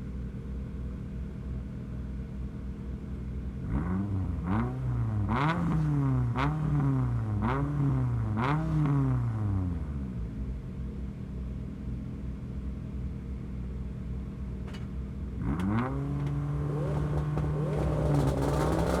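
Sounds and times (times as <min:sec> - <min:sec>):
car engine idling and revving: 0:00.0 - 0:19.0
exhaust cracks: 0:14.7 - 0:19.0.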